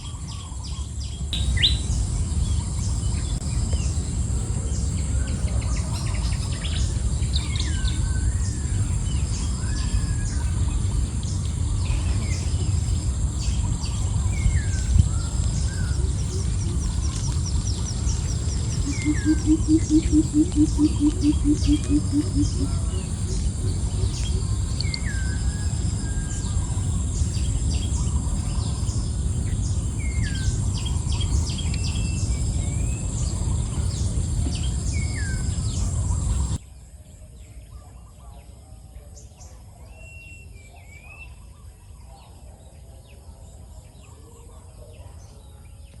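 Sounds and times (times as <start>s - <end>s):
loud low rumble: 0.0s - 36.6s
birds chirping: 0.0s - 46.0s
insect drone: 0.0s - 46.0s
bird downward-sliding call: 18.8s - 22.8s.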